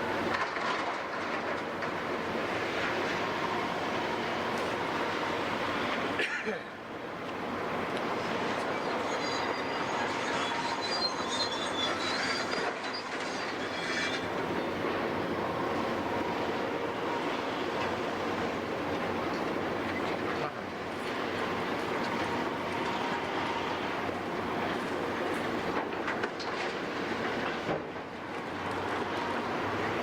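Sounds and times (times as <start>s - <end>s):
steel-on-steel squeal: 8.2s - 15.0s, 22.0s - 25.3s.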